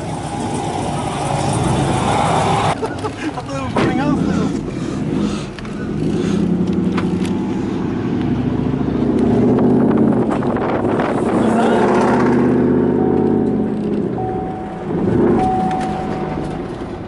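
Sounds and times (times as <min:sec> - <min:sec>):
truck engine revving: 0:03.7 - 0:17.0.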